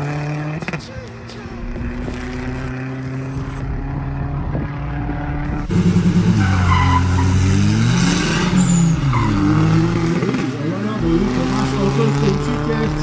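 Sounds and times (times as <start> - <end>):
drag racing car engine: 0.0 - 13.0.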